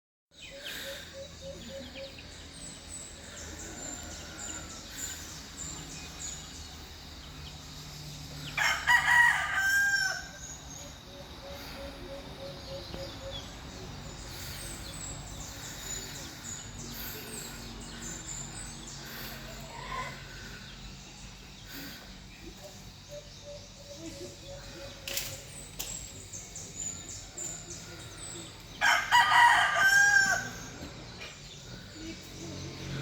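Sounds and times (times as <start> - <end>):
rooster crowing: 8.6 - 10.5, 28.8 - 30.7.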